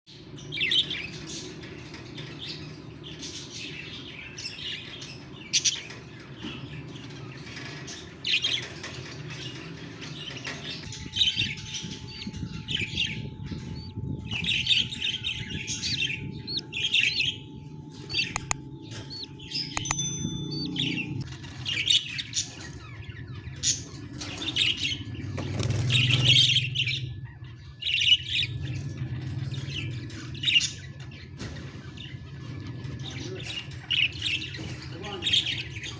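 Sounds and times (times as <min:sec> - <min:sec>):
budgie chicks chirping: 0:10.4 - 0:28.6
steady low hum: 0:10.8 - 0:21.8.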